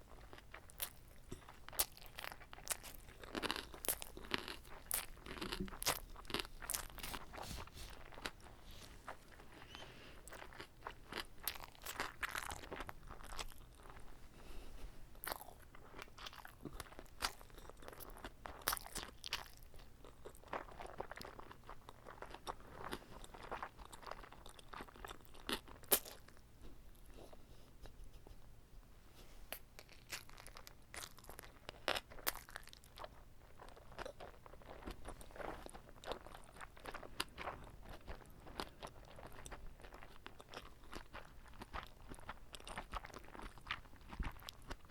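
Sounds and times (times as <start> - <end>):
close chewing crunches: 0.1 - 14.2, 15.2 - 27.4, 29.5 - 44.9.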